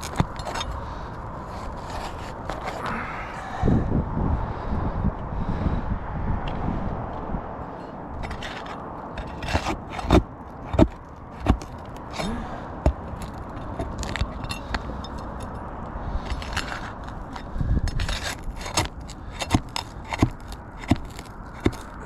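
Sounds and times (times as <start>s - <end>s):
flat bar scraping shingles: 0.0s - 3.0s, 7.8s - 15.6s, 16.2s - 22.0s
sharp metal knocks: 8.2s - 15.6s, 17.4s - 22.0s.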